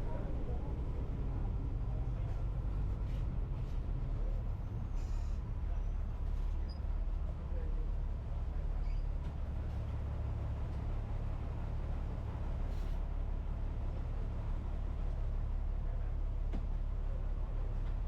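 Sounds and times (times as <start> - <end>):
bus engine rumble: 0.0 - 18.0.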